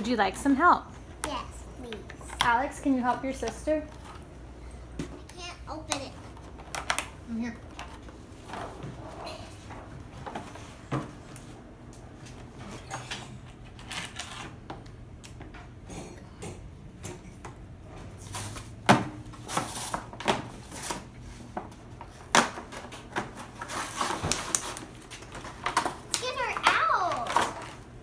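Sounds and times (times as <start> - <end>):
toy box being opened: 25.8 - 27.8.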